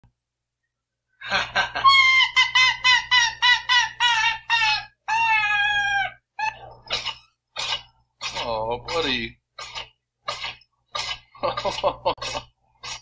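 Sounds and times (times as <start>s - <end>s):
fox yelping calls: 3.2s - 9.0s.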